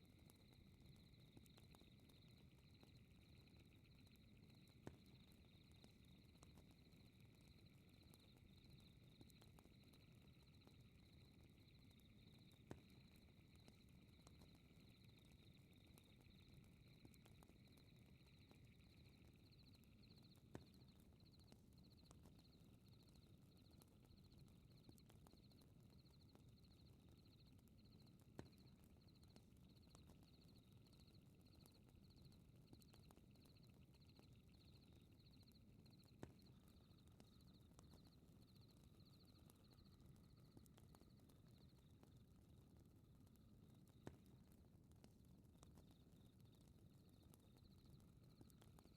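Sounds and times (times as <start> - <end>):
steady insect trill: 0.0 - 41.9
fire crackle pops: 0.0 - 48.9
insects chirping: 0.2 - 22.0, 32.9 - 41.8.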